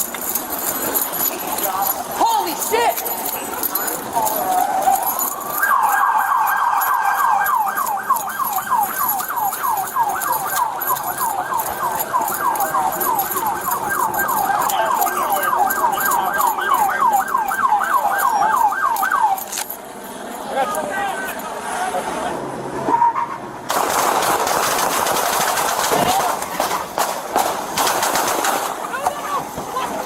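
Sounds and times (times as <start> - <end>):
police siren yelping: 1.8 - 19.7.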